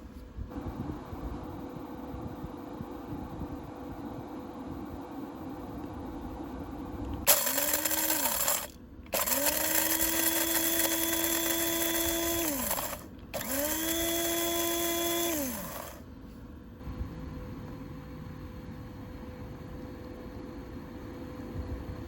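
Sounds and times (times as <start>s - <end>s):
electric coffee grinder: 7.3s - 16.0s.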